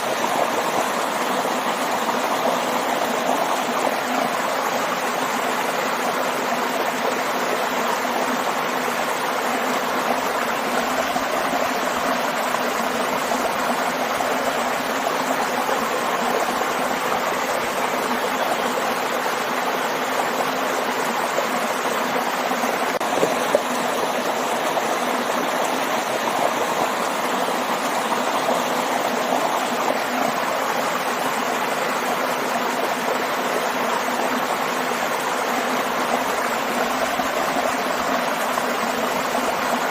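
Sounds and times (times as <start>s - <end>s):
waterfall rushing and splashing: 0.0s - 39.9s.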